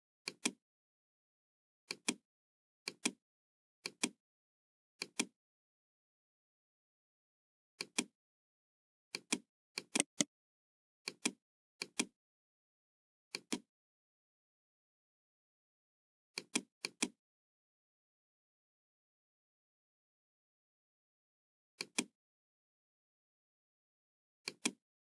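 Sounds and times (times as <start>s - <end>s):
computer mouse clicking: 0.3s - 0.6s, 9.1s - 10.3s, 21.8s - 22.1s, 24.4s - 24.8s.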